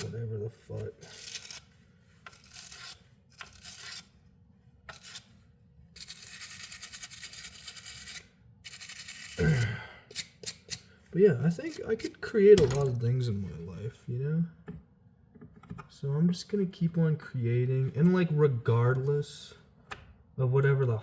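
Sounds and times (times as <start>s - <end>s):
rasping scrapes: 0.8s - 4.1s, 4.9s - 5.4s, 6.0s - 9.6s
person sighing: 9.4s - 10.1s.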